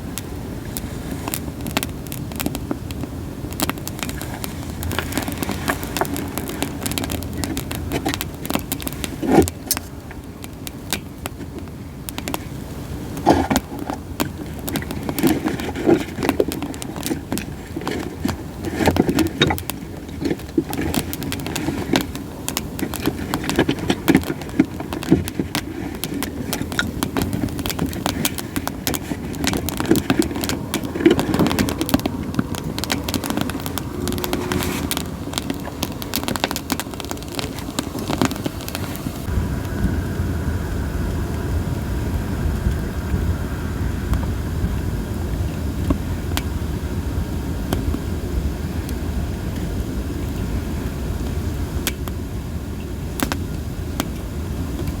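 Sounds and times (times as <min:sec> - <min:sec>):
campfire crackling and popping: 0:00.0 - 0:55.0
low rush of flames: 0:00.0 - 0:55.0.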